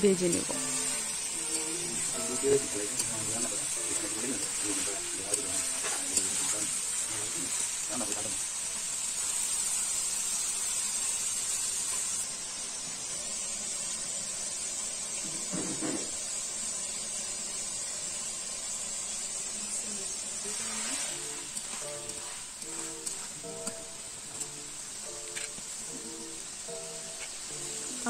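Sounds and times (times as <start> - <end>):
background music: 0.0 - 7.5, 21.1 - 28.0
chicken frying in hot oil: 0.0 - 28.0.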